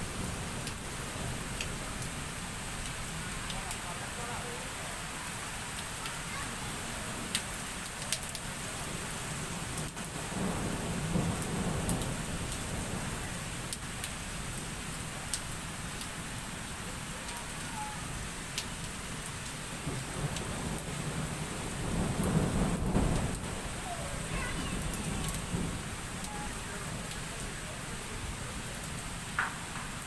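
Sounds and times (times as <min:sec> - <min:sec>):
heavy rain pouring: 0:00.0 - 0:30.0
thunder rumbling: 0:08.7 - 0:18.4, 0:19.0 - 0:30.0.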